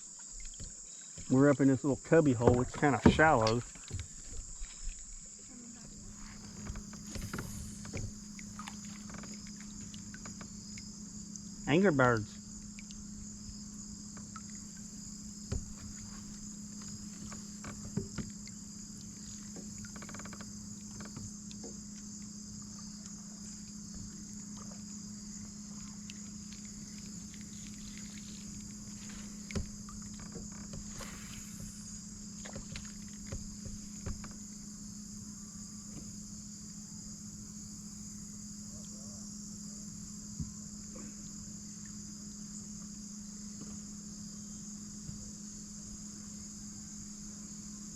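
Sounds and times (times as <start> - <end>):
insects chirping shrilly: 0.0 - 47.9
low steady hum: 0.0 - 47.9
faint knocks: 15.4 - 18.6, 28.9 - 34.5.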